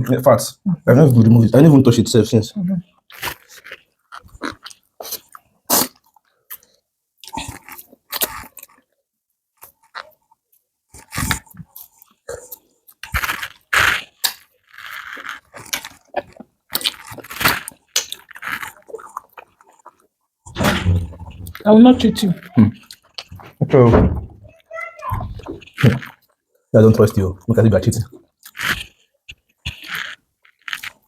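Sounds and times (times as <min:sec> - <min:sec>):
chewing and crunching: 0:03.0 - 0:09.0, 0:09.6 - 0:20.2, 0:22.4 - 0:23.6, 0:25.3 - 0:31.0.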